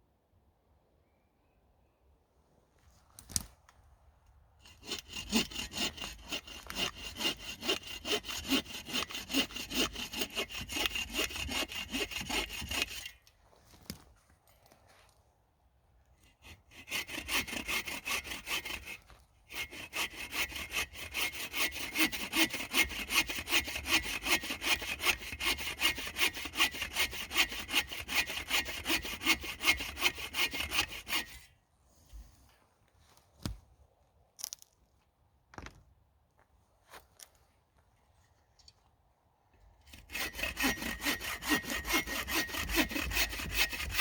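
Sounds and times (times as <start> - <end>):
hand saw cutting wood: 4.6 - 13.2, 16.2 - 31.6, 39.9 - 44.0.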